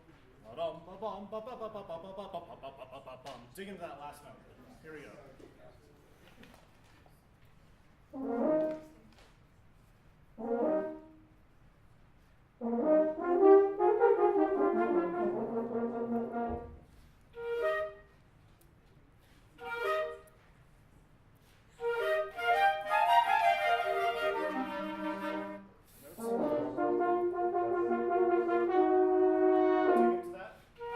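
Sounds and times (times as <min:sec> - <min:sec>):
wind band playing chords: 0:08.2 - 0:09.0, 0:10.4 - 0:11.3, 0:12.6 - 0:18.0, 0:21.8 - 0:30.9.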